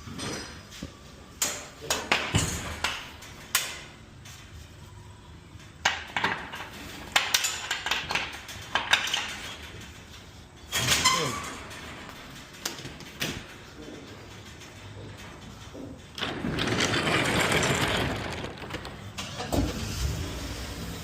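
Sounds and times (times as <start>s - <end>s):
rattling clatter: 6.1s - 19.8s.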